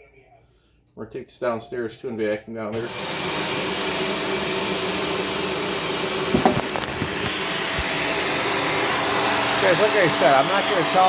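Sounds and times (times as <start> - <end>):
vacuum cleaner motor whine: 2.8 - 11.0.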